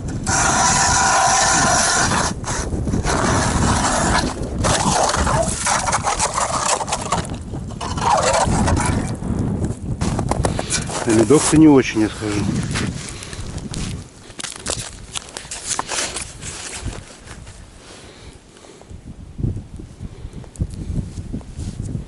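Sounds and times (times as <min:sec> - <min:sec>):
scraping on snowy ice: 0:00.1 - 0:09.2, 0:10.0 - 0:18.2.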